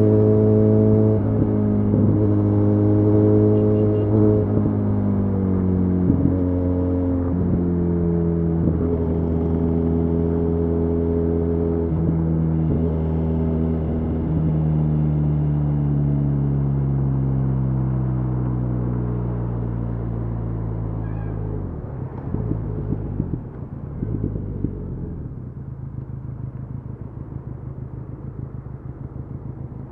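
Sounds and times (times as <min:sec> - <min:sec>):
road and wind rumble: 0:00.0 - 0:29.9
motorcycle engine running: 0:21.0 - 0:29.9.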